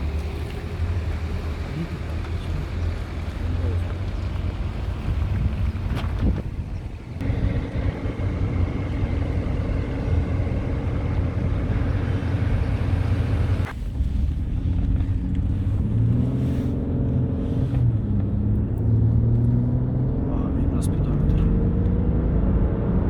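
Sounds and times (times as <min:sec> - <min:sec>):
road noise: 0:00.0 - 0:23.0
wind rushing over microphone: 0:04.6 - 0:15.9
low drone: 0:07.2 - 0:13.7.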